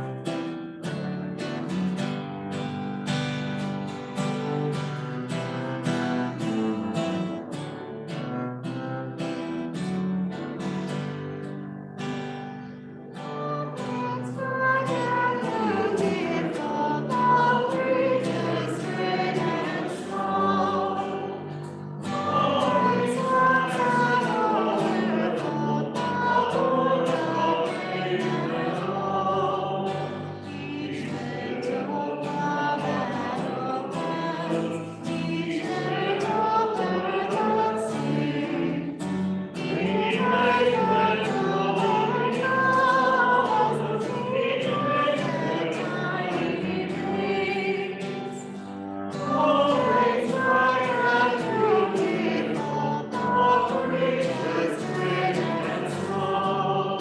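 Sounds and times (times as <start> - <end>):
strummed acoustic guitar: 0.0 - 57.0
group of voices singing: 13.1 - 57.0.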